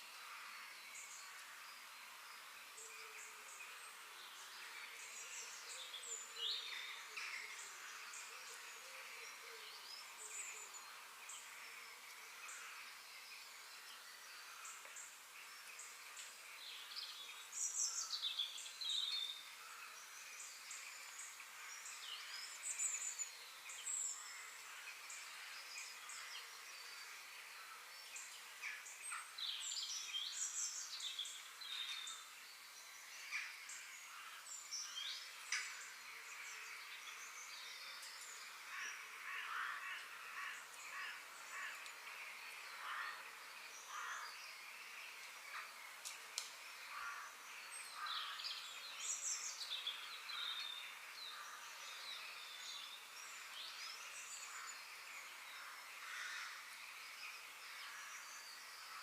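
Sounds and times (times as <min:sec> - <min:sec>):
outdoor hiss: 0:00.0 - 0:59.0.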